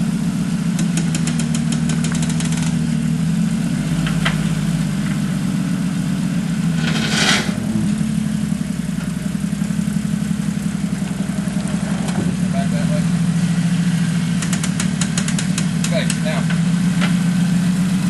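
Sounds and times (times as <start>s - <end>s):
off-road vehicle engine idling: 0.0s - 18.0s
short hissing scrape: 6.8s - 7.8s.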